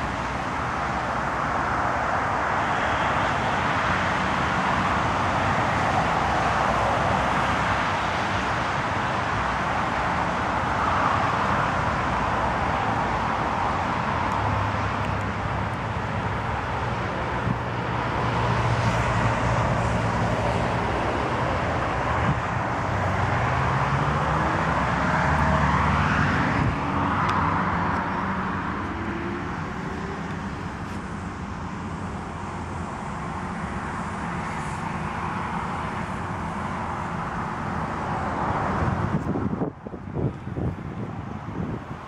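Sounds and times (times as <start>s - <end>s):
car engine idling: 26.6s - 38.8s.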